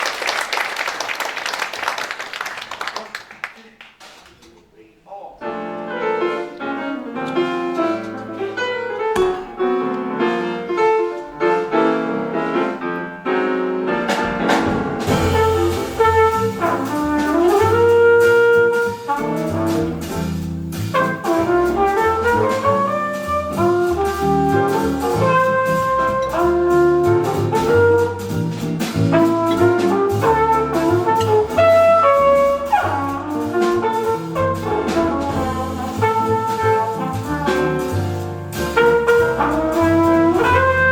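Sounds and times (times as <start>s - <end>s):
piano: 5.4s - 40.9s
walking double bass: 5.7s - 40.9s
drums and cymbals: 14.0s - 40.9s
flugelhorn melody: 14.8s - 40.9s.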